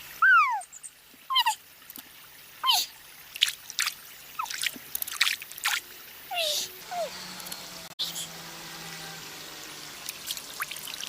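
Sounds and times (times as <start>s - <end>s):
splashy water clicks: 1.8s - 2.2s, 2.8s - 6.0s, 10.0s - 11.0s.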